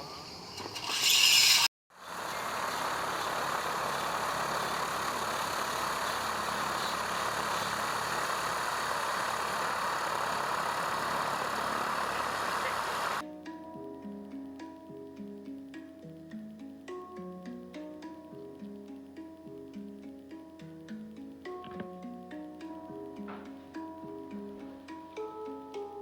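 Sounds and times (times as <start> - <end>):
light aircraft engine droning: 2.0 - 13.2.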